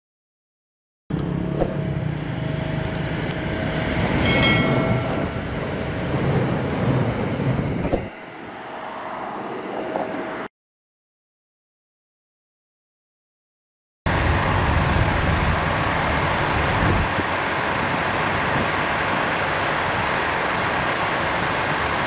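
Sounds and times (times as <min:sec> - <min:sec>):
diesel railcar engine rumble: 0:01.1 - 0:10.5, 0:14.1 - 0:22.0
wheel and rail noise: 0:01.1 - 0:10.5, 0:14.1 - 0:22.0
high ringing tone: 0:04.0 - 0:06.0.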